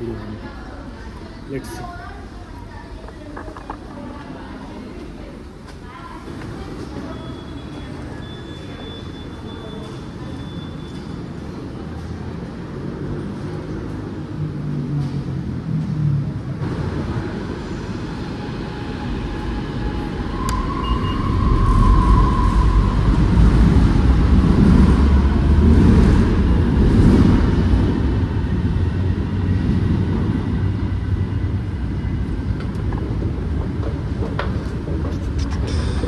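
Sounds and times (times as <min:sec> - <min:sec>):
train rumbling: 0:00.4 - 0:36.0
high squeal: 0:18.6 - 0:23.7, 0:35.1 - 0:36.0.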